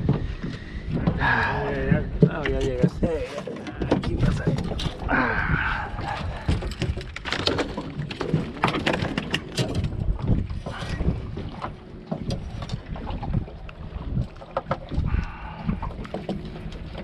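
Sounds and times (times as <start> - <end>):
wind rumbling on microphone: 0.0 - 17.0
knocks and clatter: 2.2 - 5.0, 6.4 - 10.4.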